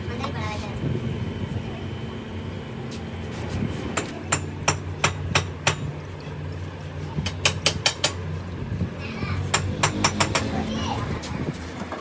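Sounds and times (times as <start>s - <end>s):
hammer strikes: 4.0s - 5.9s, 9.5s - 10.6s.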